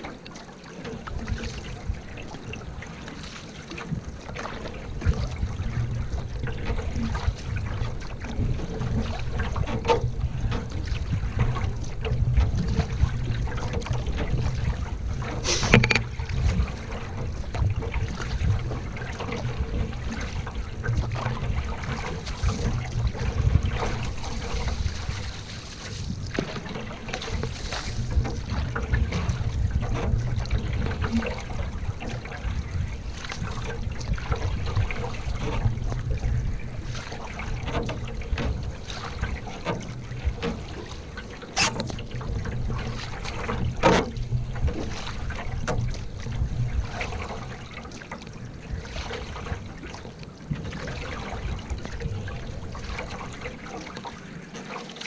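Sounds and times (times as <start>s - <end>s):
water lapping around canoe: 0.0s - 55.0s
wind on microphone: 3.8s - 40.8s, 41.6s - 47.7s.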